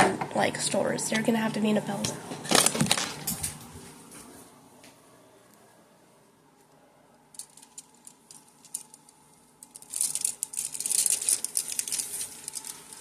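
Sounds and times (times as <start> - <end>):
rummaging rustling: 2.4 - 3.6, 9.6 - 13.0.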